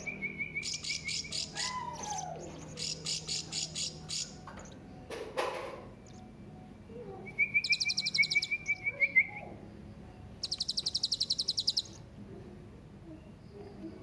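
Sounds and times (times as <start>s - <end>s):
parrot chirping: 0.0s - 4.9s, 6.0s - 6.3s, 7.3s - 9.6s, 10.3s - 12.1s
high buzzy bird trill: 0.0s - 5.1s, 5.9s - 12.1s.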